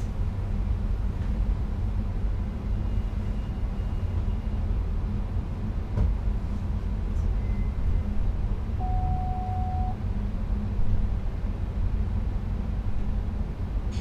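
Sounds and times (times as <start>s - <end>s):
train low rumble in cab: 0.0s - 14.0s
short steady tone: 8.8s - 10.0s.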